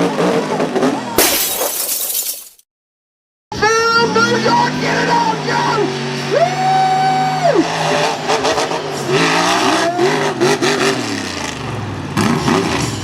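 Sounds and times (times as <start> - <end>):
truck engine revving: 3.6 - 13.0.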